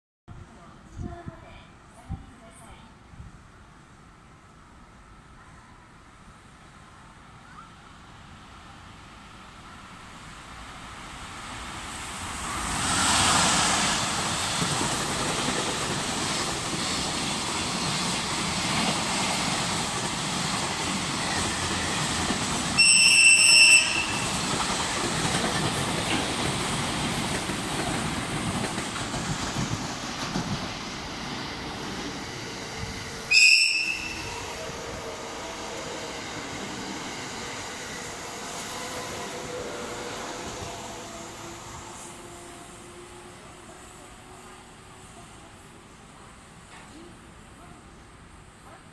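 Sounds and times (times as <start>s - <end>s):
train horn blasts: 22.8s - 24.3s, 33.3s - 35.0s.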